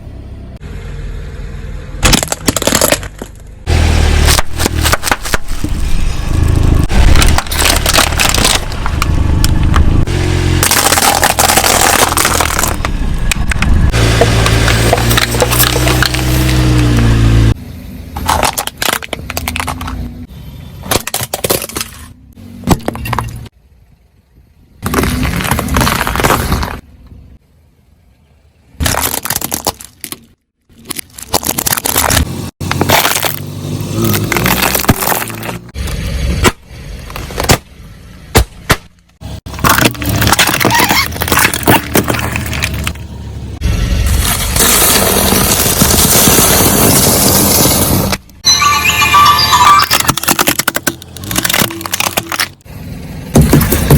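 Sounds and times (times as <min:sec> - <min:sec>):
low engine hum: 0:00.0 - 0:18.4
car engine hum: 0:00.0 - 0:28.9, 0:31.5 - 0:49.4, 0:50.2 - 0:53.9
crunching and crackling: 0:02.0 - 0:03.6, 0:04.2 - 0:06.2, 0:06.8 - 0:10.0, 0:10.6 - 0:17.1, 0:18.2 - 0:20.1, 0:24.8 - 0:26.9, 0:28.8 - 0:37.7, 0:38.3 - 0:43.0, 0:44.1 - 0:48.3, 0:49.8 - 0:52.7
brittle objects crushed under tyre: 0:02.0 - 0:17.1, 0:18.2 - 0:20.1, 0:20.8 - 0:23.5, 0:24.8 - 0:26.9, 0:28.8 - 0:37.7, 0:38.3 - 0:43.1, 0:44.1 - 0:48.3, 0:49.6 - 0:52.7, 0:53.3 - 0:53.9.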